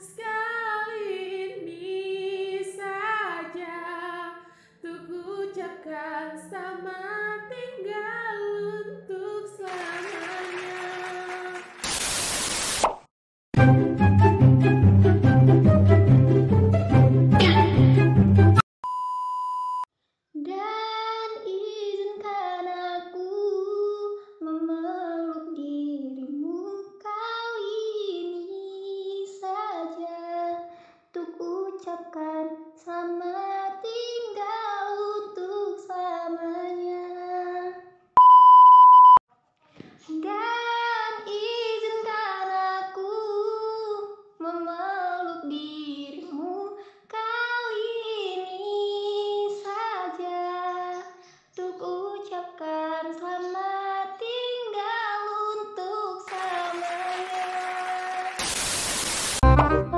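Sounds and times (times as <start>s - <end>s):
woman singing unaccompanied: 0.0s - 11.7s, 40.1s - 58.2s
high beep: 18.8s - 19.9s, 38.2s - 39.2s.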